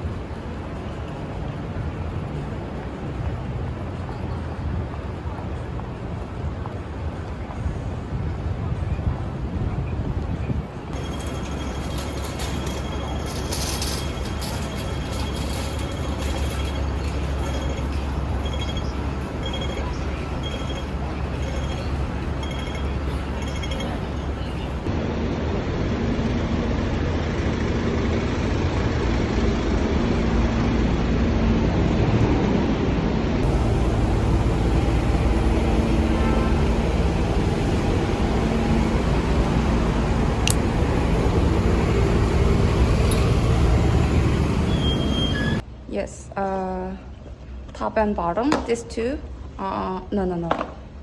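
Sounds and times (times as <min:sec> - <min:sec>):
vehicle rumble from inside: 0:10.9 - 0:45.7.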